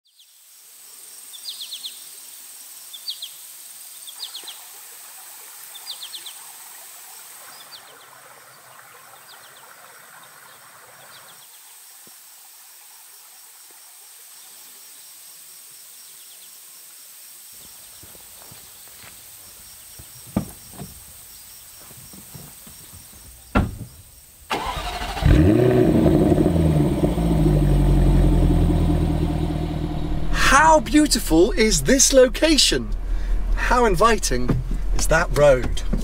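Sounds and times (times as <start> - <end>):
low rumble: 26.3 - 36.0.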